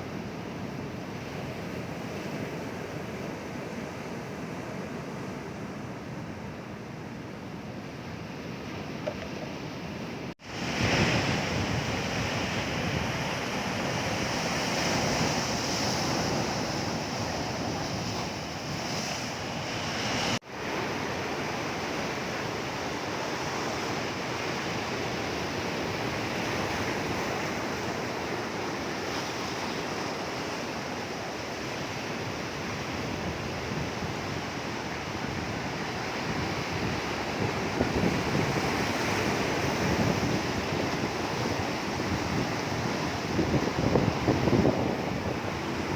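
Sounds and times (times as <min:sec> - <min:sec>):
waves breaking on shore: 0:07.8 - 0:45.9
wind buffeting microphone: 0:10.5 - 0:19.0, 0:32.4 - 0:45.9.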